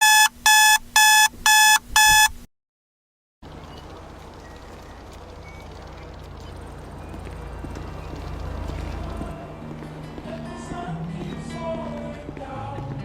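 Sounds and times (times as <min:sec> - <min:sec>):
electronic alarm beeping: 0:00.0 - 0:02.4.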